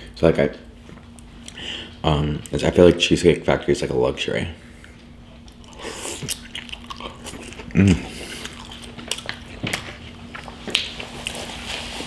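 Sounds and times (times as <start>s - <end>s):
close chewing with wet mouth clicks: 5.4s - 11.4s
person humming: 7.7s - 8.3s.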